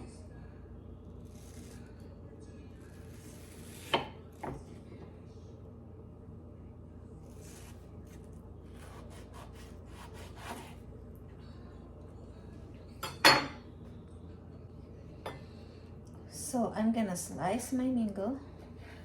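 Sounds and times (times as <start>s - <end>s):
knife scraping and tapping dishes: 13.0s - 13.7s.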